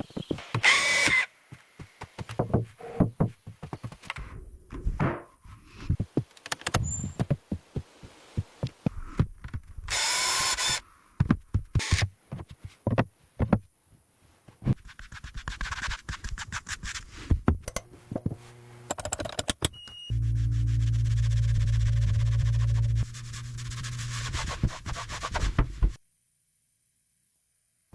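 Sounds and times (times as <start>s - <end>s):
sharp knocks and taps: 1.5s - 4.2s
machine hum: 20.1s - 24.3s.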